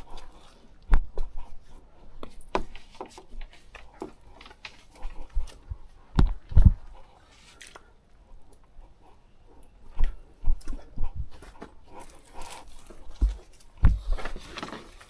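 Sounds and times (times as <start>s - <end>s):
heavy thumps: 13.1s - 14.4s.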